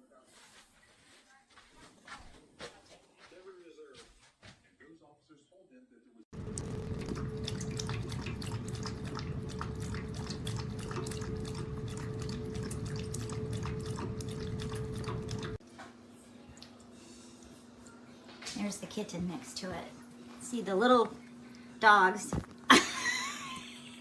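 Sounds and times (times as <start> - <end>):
water dripping and splashing: 6.4 - 15.6
water fountain pump hum: 6.4 - 24.0.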